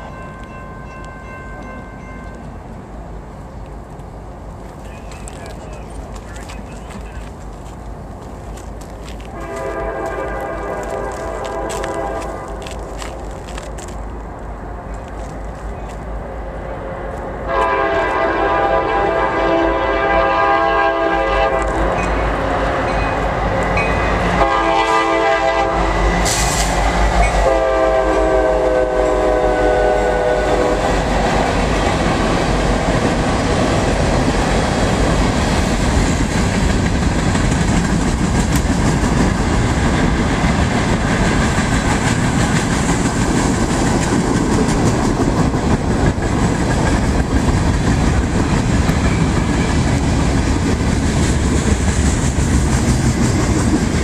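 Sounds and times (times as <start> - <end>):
freight cars rumbling and clattering: 2.3 - 9.4, 30.8 - 54.0
locomotive air horn blasts: 9.3 - 12.6, 16.7 - 23.2, 24.2 - 26.0, 27.3 - 30.9.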